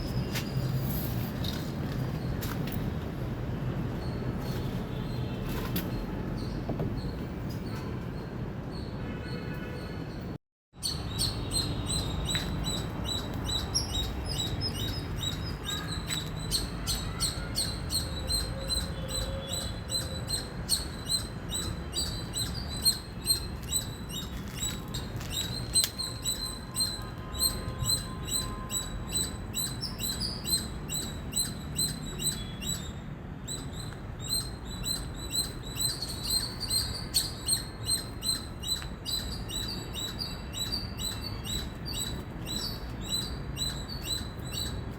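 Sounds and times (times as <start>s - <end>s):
squirrel chirping: 10.8s - 44.9s.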